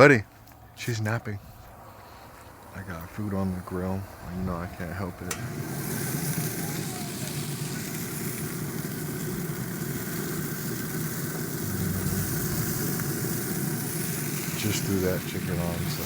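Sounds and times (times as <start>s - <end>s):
chicken sizzling on a grill: 2.1s - 16.0s
low even hum: 11.5s - 13.6s.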